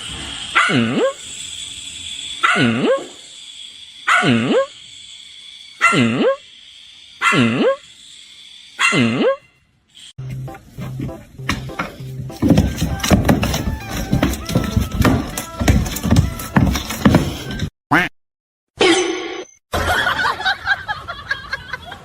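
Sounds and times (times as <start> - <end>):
dog barking: 0.5 - 1.2, 2.4 - 3.2, 4.1 - 4.7, 5.8 - 6.4, 7.2 - 7.8, 8.8 - 9.4.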